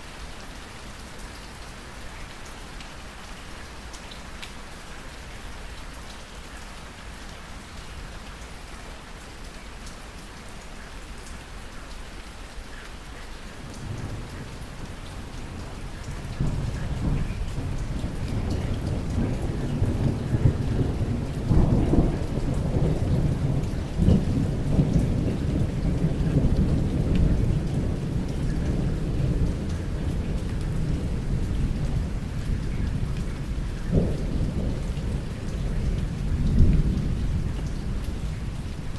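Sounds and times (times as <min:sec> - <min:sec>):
steady rain falling: 0:00.0 - 0:38.9
thunder rumbling: 0:15.6 - 0:33.2.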